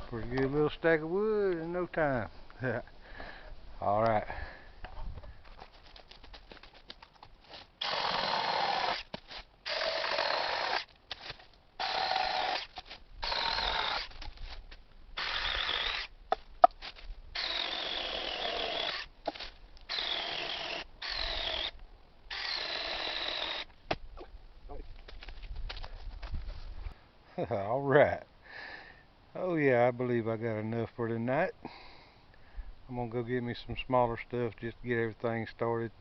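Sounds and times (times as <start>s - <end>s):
mini chainsaw cutting wood: 7.5s - 14.6s, 15.2s - 16.1s, 16.9s - 23.7s.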